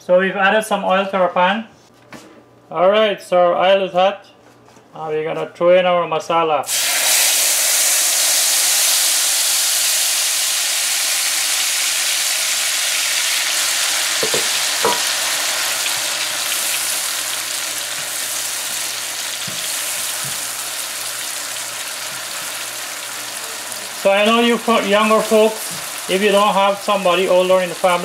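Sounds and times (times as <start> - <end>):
curry paste sizzling in hot oil: 6.7 - 28.0.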